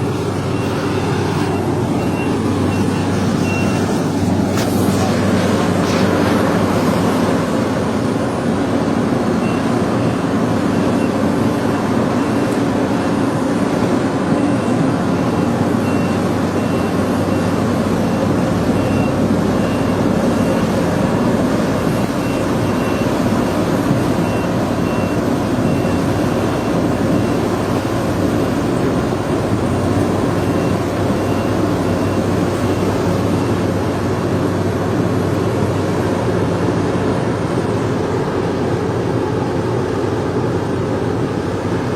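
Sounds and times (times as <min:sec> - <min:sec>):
heavy machinery engine running: 0:00.0 - 0:41.9
warning alarm beeping: 0:00.2 - 0:04.1.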